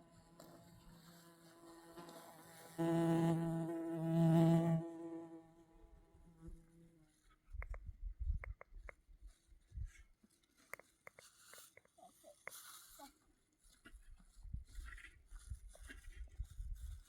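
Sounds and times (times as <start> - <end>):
faint small clicks: 7.6 - 9.0, 10.5 - 12.6.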